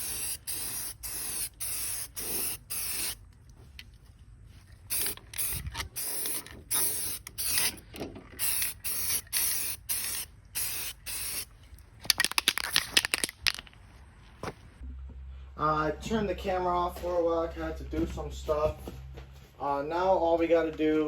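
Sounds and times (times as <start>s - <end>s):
spray can hissing bursts: 0.0s - 3.2s, 4.9s - 7.8s, 8.4s - 11.5s.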